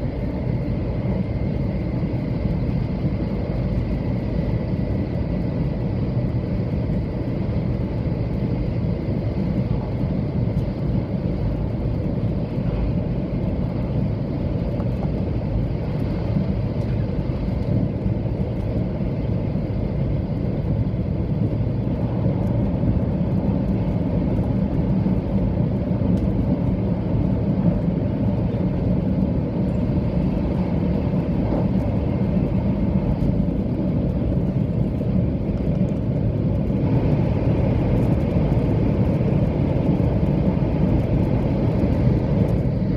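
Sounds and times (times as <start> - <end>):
train wheels rumbling on track: 9.1 - 42.9.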